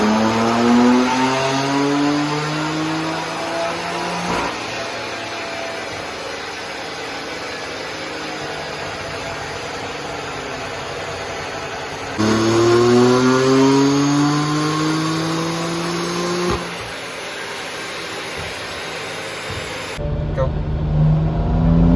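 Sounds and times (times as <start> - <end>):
car engine revving on dyno: 0.0 - 21.9.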